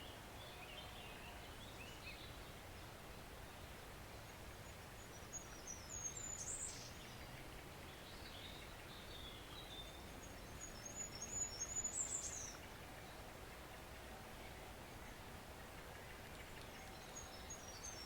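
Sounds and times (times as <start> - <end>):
songbird twittering: 4.6 - 13.2, 15.0 - 18.0.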